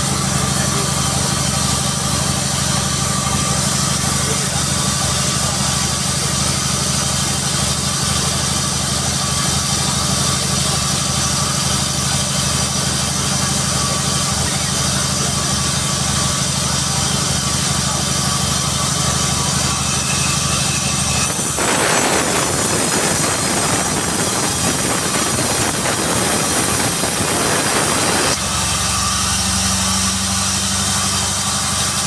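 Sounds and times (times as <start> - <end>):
saw engine running: 0.0 - 32.0
saw blade hissing through log: 20.6 - 28.4.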